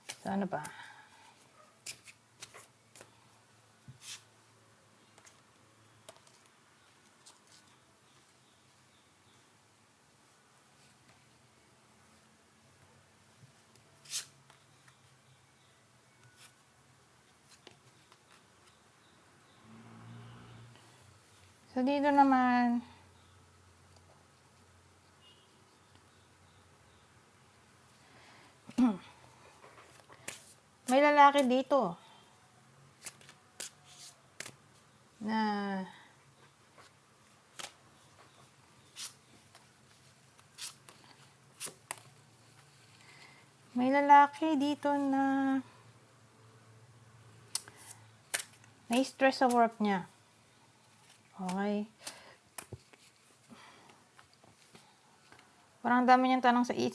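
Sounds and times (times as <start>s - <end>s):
cards swishing and sliding: 1.8s - 3.2s, 3.9s - 4.3s, 14.0s - 14.6s, 29.9s - 30.6s, 33.0s - 34.6s, 38.8s - 42.6s.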